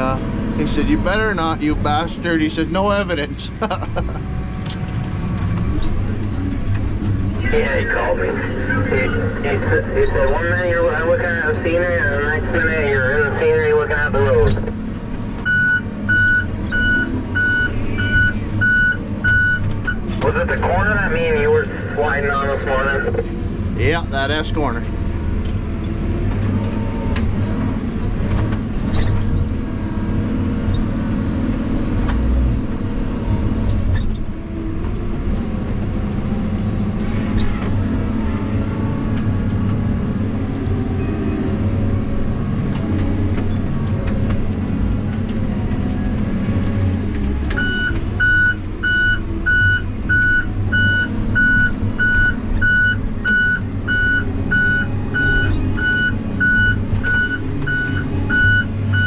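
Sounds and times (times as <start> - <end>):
diesel engine running: 0.0 - 59.0
backup alarm beeping: 47.6 - 59.0.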